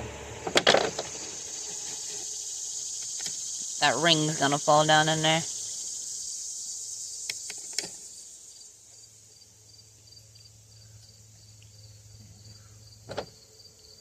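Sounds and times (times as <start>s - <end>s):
low hum: 0.0s - 8.9s
crickets chirping: 0.0s - 14.0s.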